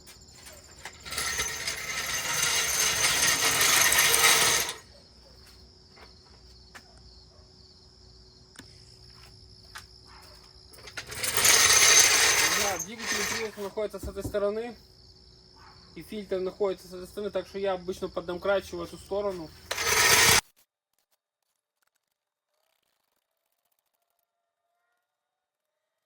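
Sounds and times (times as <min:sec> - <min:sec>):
rough mechanical rattling: 0:00.4 - 0:04.8, 0:10.8 - 0:13.7, 0:19.7 - 0:20.4.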